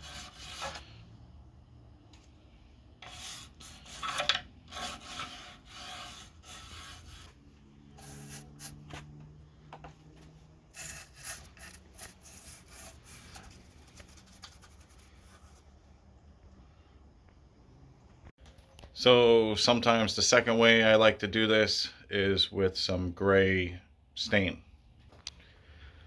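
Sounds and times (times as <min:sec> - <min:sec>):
toothbrush scrubbing wood: 0:00.0 - 0:00.8, 0:03.0 - 0:08.9, 0:10.7 - 0:15.6.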